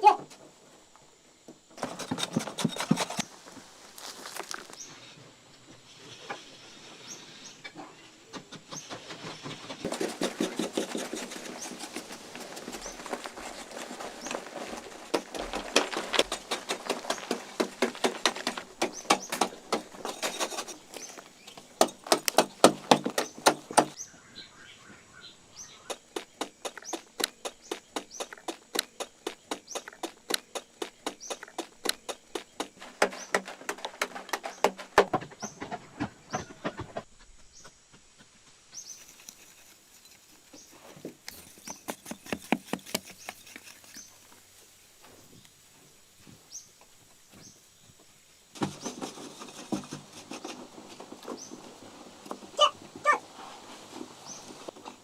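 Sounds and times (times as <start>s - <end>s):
rapid knocks: 9.8s - 20.8s, 21.6s - 24.0s.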